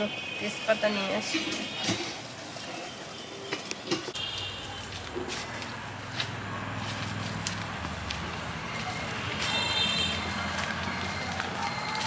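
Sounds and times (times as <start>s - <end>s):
footsteps: 3.6s - 12.0s.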